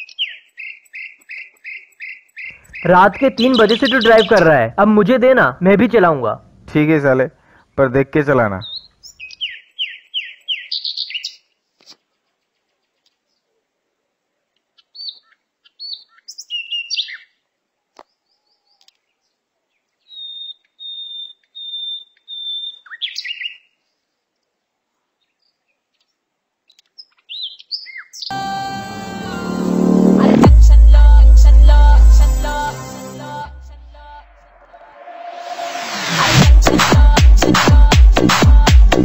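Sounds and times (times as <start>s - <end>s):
whistled bird notes: 0.0s - 4.4s, 20.0s - 23.7s
birds chirping: 0.0s - 5.0s, 8.4s - 11.5s.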